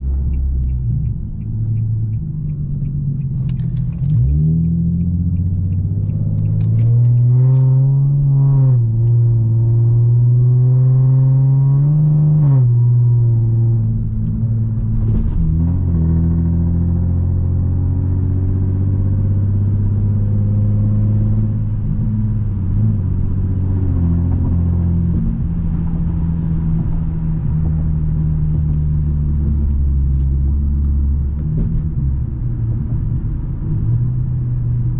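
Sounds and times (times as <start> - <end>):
light even ticks: 0.0 - 8.3
car engine accelerating: 0.0 - 34.9.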